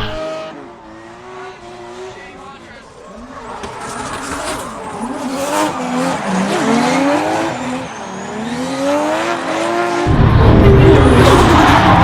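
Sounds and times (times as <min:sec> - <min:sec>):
car engine revving: 0:00.0 - 0:12.0
tyre squeal: 0:03.0 - 0:08.9.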